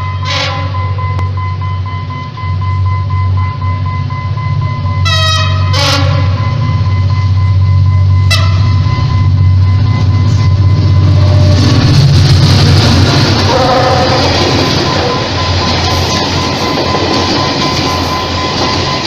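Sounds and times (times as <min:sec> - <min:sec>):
train rumbling: 0:00.0 - 0:19.0
train horn blast: 0:00.1 - 0:01.0, 0:05.0 - 0:06.5, 0:08.3 - 0:08.8, 0:13.4 - 0:15.4.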